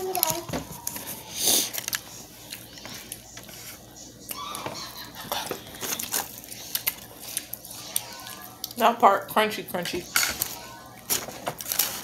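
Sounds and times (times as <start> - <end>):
crunchy chicken being chewed: 5.2 - 8.8.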